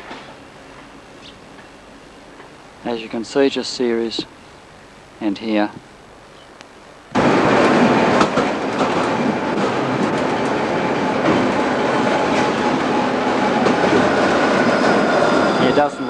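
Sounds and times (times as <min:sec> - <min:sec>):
tram wheel and rail noise: 0:00.0 - 0:03.9, 0:07.1 - 0:16.0
rail clicks: 0:07.1 - 0:16.0.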